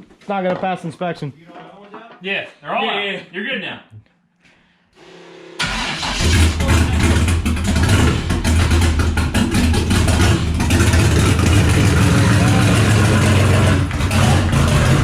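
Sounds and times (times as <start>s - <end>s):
car engine starting and idling: 5.0s - 15.0s.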